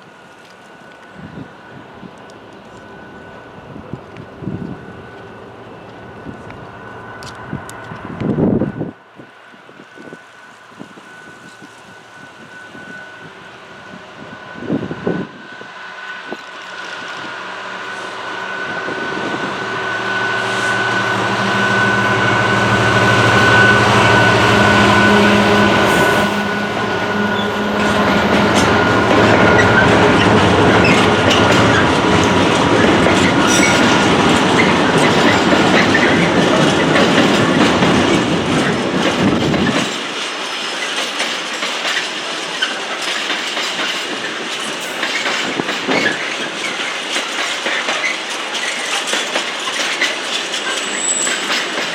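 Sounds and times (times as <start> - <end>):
diesel train engine hum: 0.0 - 40.3
train wheels clattering on rails: 22.5 - 51.9.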